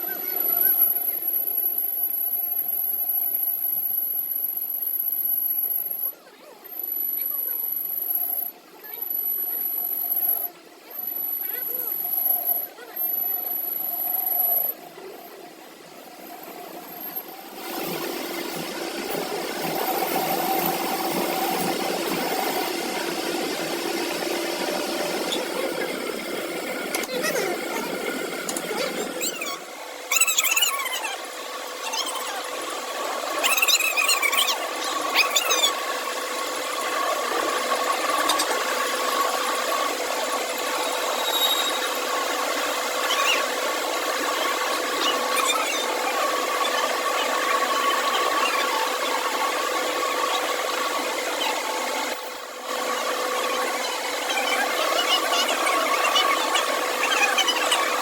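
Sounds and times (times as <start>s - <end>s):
workshop machine motor whining: 0.0s - 58.0s
high squeals: 40.8s - 42.0s.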